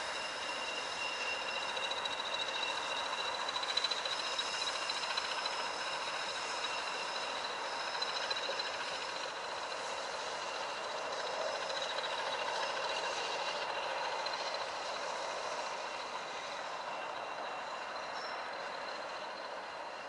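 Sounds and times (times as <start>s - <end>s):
locomotive hiss and hum: 0.0s - 20.0s.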